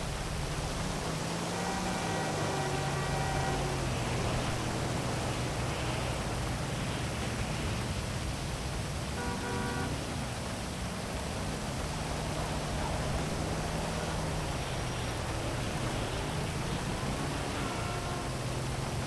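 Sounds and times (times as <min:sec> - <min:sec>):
city traffic hum: 0:00.0 - 0:19.0
heavy rain hiss: 0:00.0 - 0:19.0
car horn toot: 0:09.2 - 0:10.0, 0:14.7 - 0:18.8.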